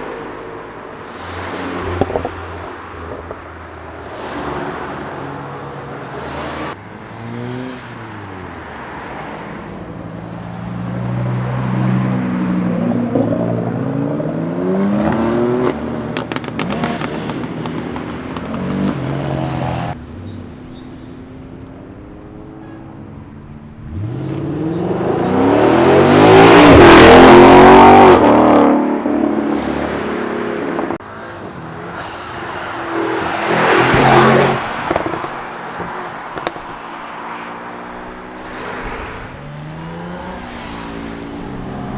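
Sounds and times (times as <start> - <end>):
cars accelerating hard past: 10.6 - 20.0, 23.9 - 41.9.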